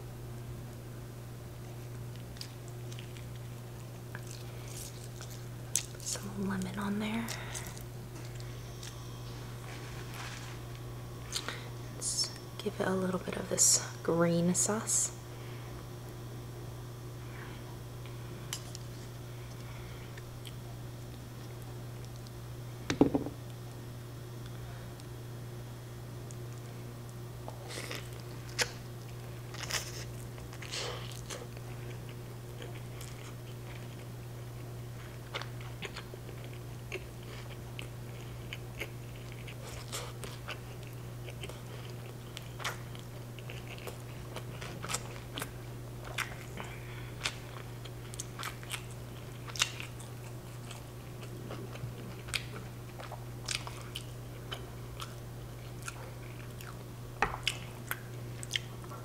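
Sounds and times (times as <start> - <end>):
person chewing crunchy food: 1.9 - 6.2, 27.4 - 59.0
low hum: 3.9 - 28.3.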